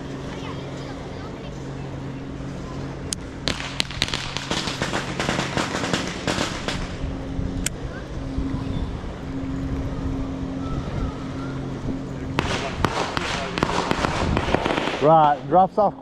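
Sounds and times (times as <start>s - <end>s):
low engine hum: 0.0s - 16.0s
fireworks crackling and popping: 3.4s - 7.0s, 12.4s - 15.4s.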